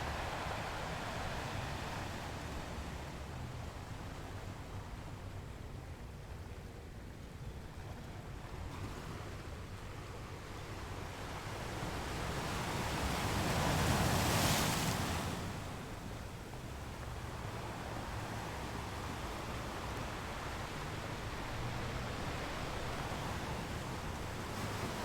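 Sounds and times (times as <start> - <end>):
sea waves washing on shore: 0.0 - 5.1, 11.1 - 25.0.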